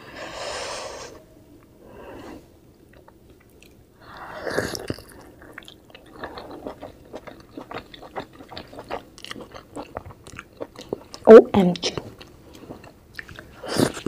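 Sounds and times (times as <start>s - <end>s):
chewing with mouth clicks: 2.8s - 3.8s, 4.5s - 11.3s, 12.0s - 14.0s.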